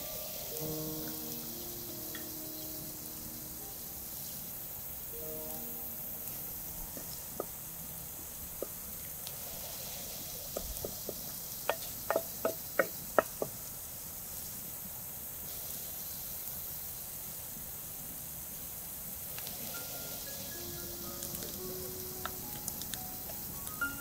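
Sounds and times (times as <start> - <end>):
onions sizzling in oil: 0.0 - 24.0
wooden spatula tapping clay pot: 10.5 - 13.6.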